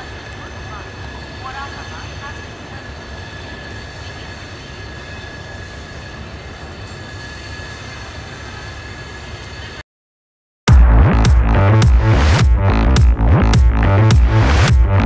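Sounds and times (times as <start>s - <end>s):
thin steady whine: 0.0s - 9.8s
train wheels rumbling on rails: 0.0s - 9.8s.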